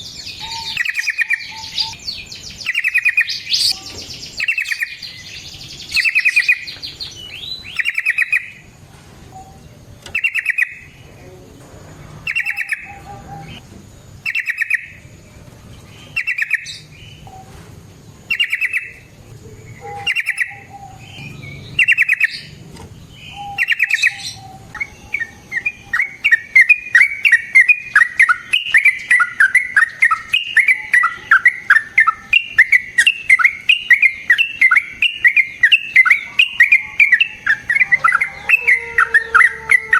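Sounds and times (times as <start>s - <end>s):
bird bubbling song phrases: 0.0s - 8.6s, 18.3s - 22.6s, 23.2s - 39.5s
bird chattering notes: 0.1s - 8.6s, 10.1s - 11.4s, 12.2s - 13.6s, 14.2s - 15.0s, 16.0s - 17.5s, 18.3s - 39.9s.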